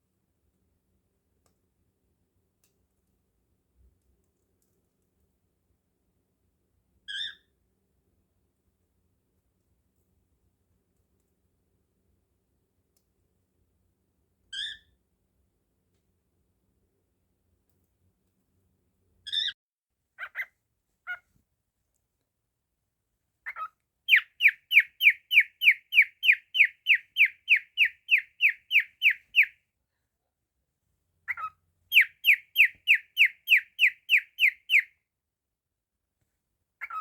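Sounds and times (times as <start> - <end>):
cockatiel chirping: 7.1 - 7.4, 20.2 - 20.5, 23.5 - 29.6, 31.3 - 34.9.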